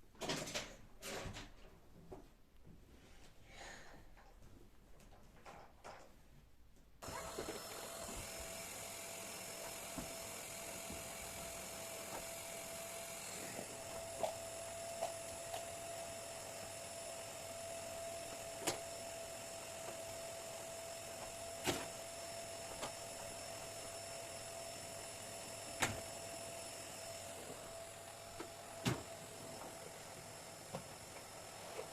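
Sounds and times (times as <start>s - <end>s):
electric motor whining: 7.0s - 31.9s.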